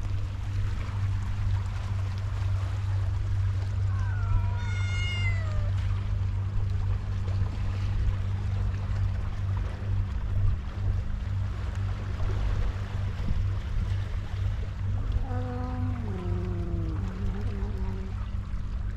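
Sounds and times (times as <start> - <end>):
steady low hum: 0.0 - 18.9
cat meowing: 3.9 - 5.8.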